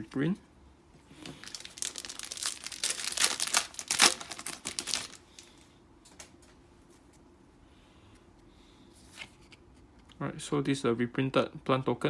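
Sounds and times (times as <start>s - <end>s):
foil wrapper crinkling: 1.2s - 5.6s.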